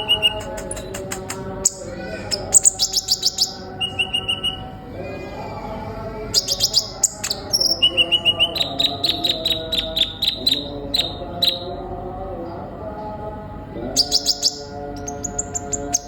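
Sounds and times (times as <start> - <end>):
bird chirping and trilling: 0.0 - 5.2, 6.3 - 11.8, 13.9 - 16.0.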